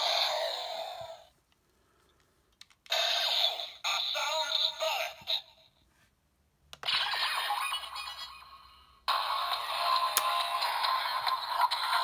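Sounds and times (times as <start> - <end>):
toy speaker music: 6.8 - 12.0.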